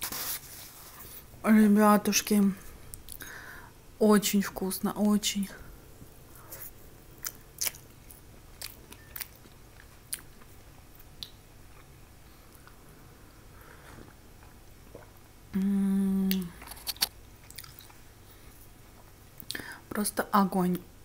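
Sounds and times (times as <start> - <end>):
quiet chewing: 6.4 - 12.8, 16.3 - 19.6
closed-mouth mmm hum: 14.9 - 17.1
wet mouth clicks: 15.0 - 18.0.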